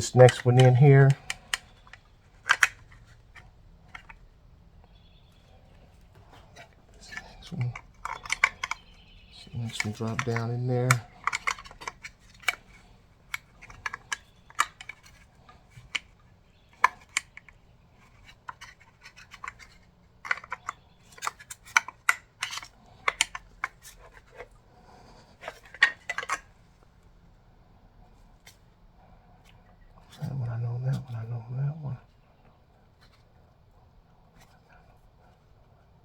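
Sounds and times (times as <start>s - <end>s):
metal scraping on plastic: 0.0s - 4.3s, 5.2s - 26.8s.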